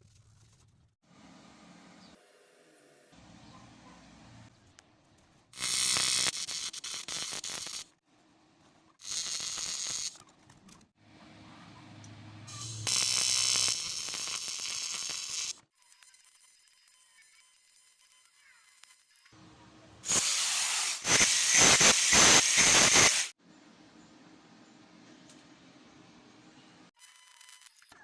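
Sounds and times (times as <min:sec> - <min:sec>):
welding arc buzzing and hissing: 0:05.6 - 0:07.9, 0:09.0 - 0:10.2, 0:12.5 - 0:16.1, 0:20.1 - 0:23.4, 0:27.0 - 0:27.9.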